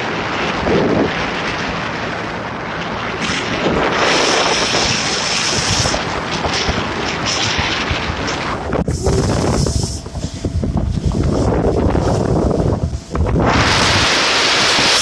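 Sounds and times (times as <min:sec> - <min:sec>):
rushing water: 0:00.0 - 0:12.4, 0:13.1 - 0:15.0
motorboat engine drone: 0:00.0 - 0:15.0
wind buffeting microphone: 0:00.0 - 0:15.0.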